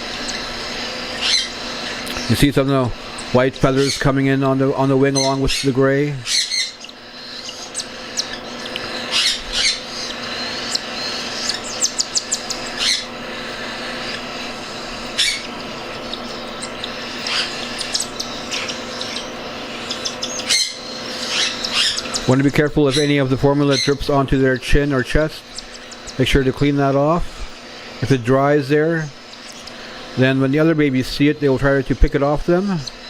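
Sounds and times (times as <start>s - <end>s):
chicks raspy begging calls: 0.0s - 33.0s
chick squawks: 0.2s - 2.2s, 5.1s - 24.0s, 25.5s - 26.2s.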